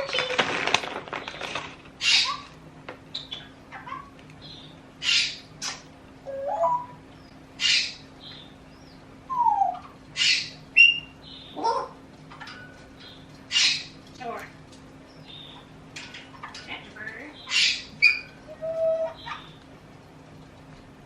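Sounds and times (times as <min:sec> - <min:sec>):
cockatiel chirping and chattering: 0:09.7 - 0:11.9.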